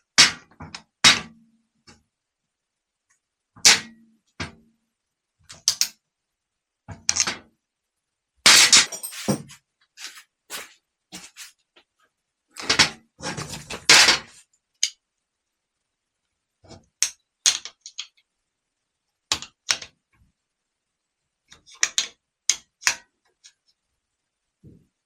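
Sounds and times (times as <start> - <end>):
metal hand tools clinking: 8.6 - 10.6.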